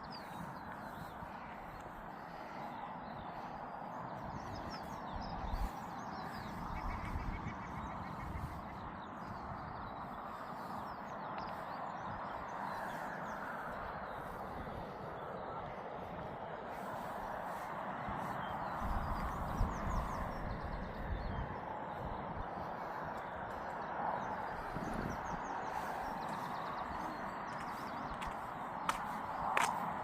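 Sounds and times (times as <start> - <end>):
small birds chirping: 0.0 - 30.0
wind buffeting microphone: 0.0 - 30.0.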